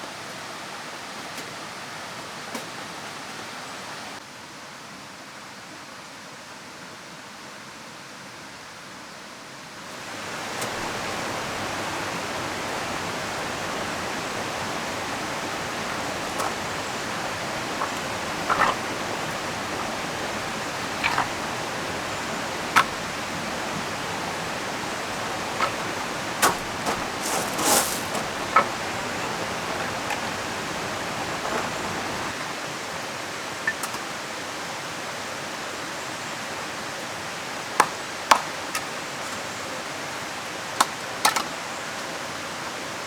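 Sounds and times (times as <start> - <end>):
falling rain: 0.0 - 4.2, 9.8 - 43.0
river rushing: 9.8 - 43.0
faint taps: 15.7 - 24.0, 25.0 - 31.9.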